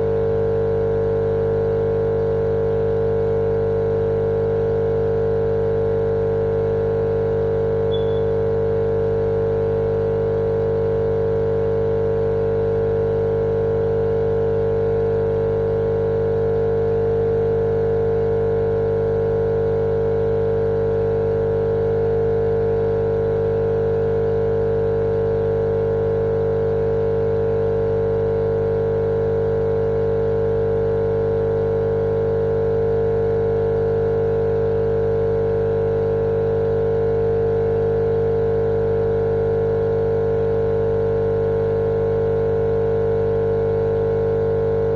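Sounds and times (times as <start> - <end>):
machine drone with hum: 7.3 - 9.0.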